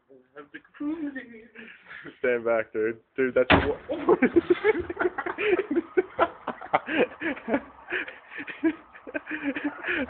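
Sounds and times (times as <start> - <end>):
men laughing: 3.9 - 10.0.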